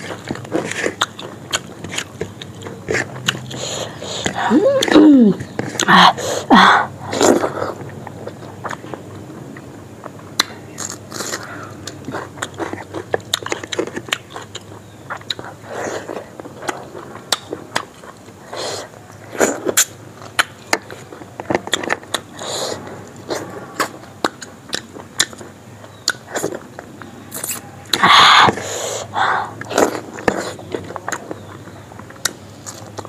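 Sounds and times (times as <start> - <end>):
person chewing food: 0.0 - 33.0
lip smacks and mouth clicks: 26.0 - 26.6.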